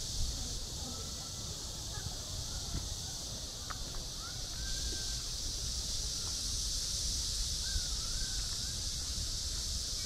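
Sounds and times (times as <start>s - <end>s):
steady high-pitched hiss: 0.0s - 10.0s
rising-and-falling bird calls: 4.2s - 5.3s, 7.6s - 8.9s.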